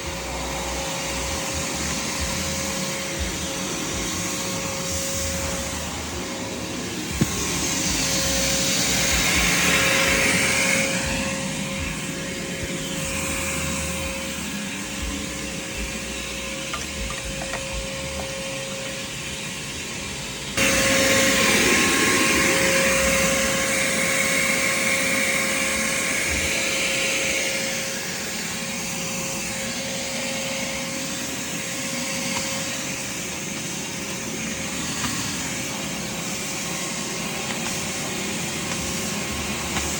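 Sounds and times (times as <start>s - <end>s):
shop vacuum motor whining: 0.0s - 39.9s.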